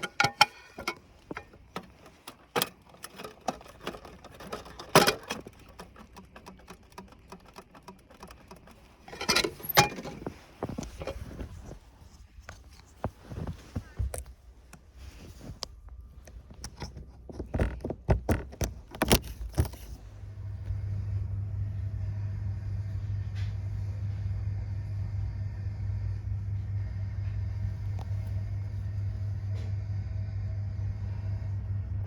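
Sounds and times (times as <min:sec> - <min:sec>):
clicks and knocks: 0:00.0 - 0:11.8, 0:16.2 - 0:20.0
vehicle engine running: 0:00.0 - 0:32.0.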